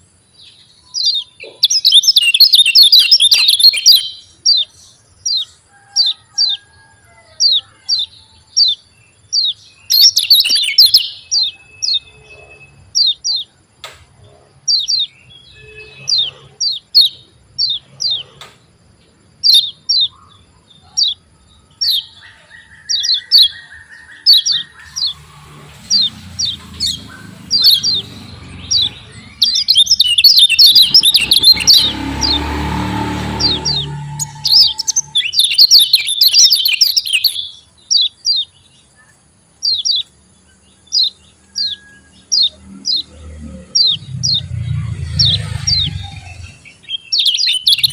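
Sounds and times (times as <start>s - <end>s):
bird chirping: 0.0s - 6.6s, 7.4s - 47.9s
rushing noise with low rumble: 24.8s - 35.6s, 43.0s - 47.9s.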